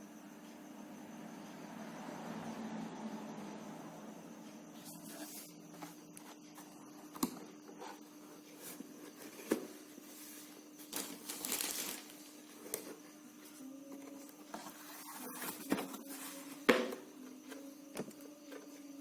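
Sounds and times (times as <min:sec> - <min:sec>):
paper crinkling and rustling: 0:08.6 - 0:13.0.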